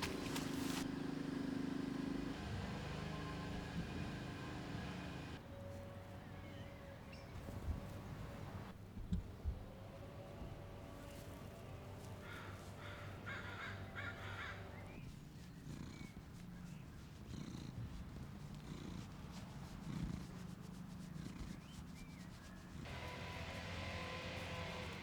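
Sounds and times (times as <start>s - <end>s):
cat purring: 2.2s - 5.4s, 14.9s - 22.9s.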